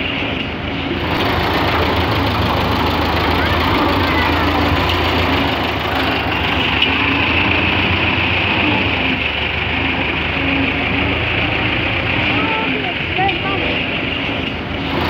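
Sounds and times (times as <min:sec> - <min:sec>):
high mechanical whine: 0:00.0 - 0:15.0
tractor diesel engine running: 0:00.0 - 0:15.0.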